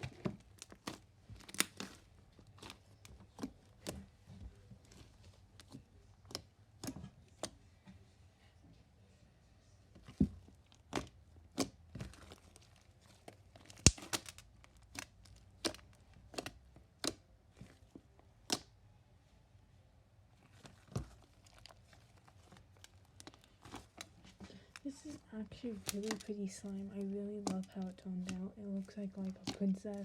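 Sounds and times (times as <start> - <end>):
slime popping and clicking: 13.6 - 17.2, 29.2 - 30.0.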